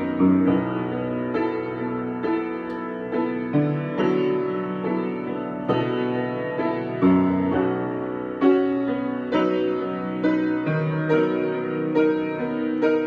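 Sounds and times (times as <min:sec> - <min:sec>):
solo piano improvising: 0:00.0 - 0:13.0.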